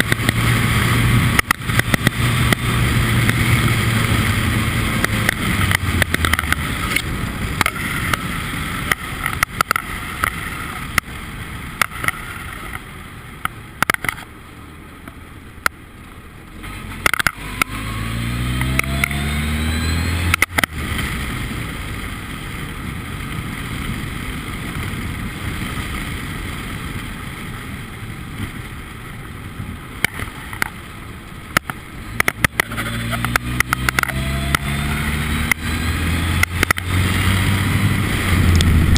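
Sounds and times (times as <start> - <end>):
wind or road noise: 0.0 - 38.9
race car engine accelerating: 16.6 - 21.3, 32.2 - 38.9.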